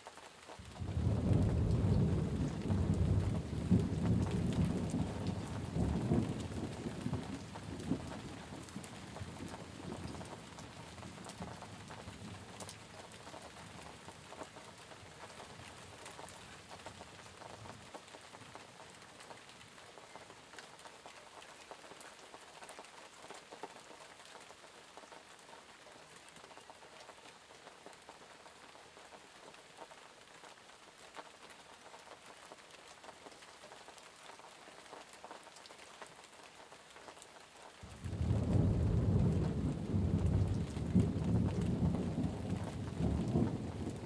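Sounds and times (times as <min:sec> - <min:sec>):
steady rain with ticking drops: 0:00.0 - 0:44.0
low thunder rumble: 0:00.8 - 0:08.2, 0:37.9 - 0:44.0.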